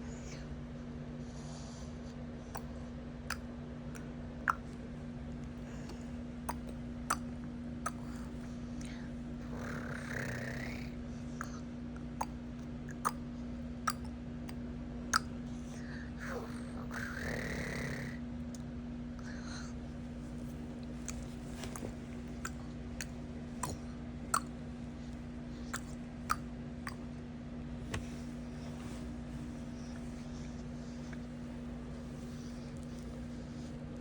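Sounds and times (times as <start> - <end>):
baby clicks and smacks: 2.5 - 2.7, 3.3 - 4.8, 5.4 - 9.0, 15.2 - 15.4, 20.4 - 27.1, 27.8 - 28.8.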